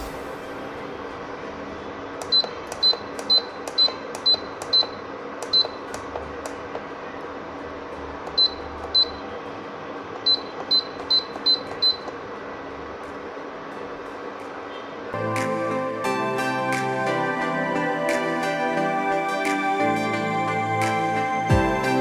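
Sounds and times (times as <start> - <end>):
steady hum: 0.0 - 2.1.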